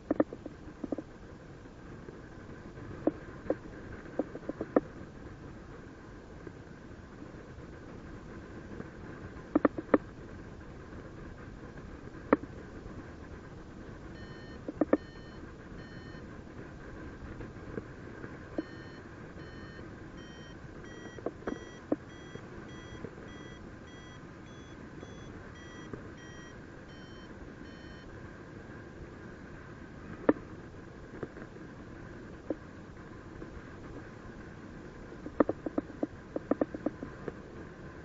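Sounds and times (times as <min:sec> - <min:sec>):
variometer short beeps: 0:14.2 - 0:16.2, 0:18.6 - 0:28.1.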